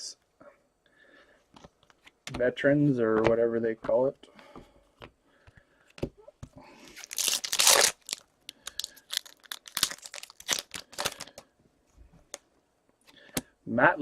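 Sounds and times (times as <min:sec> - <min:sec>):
wrapper tearing and crinkling: 0:06.9 - 0:11.4.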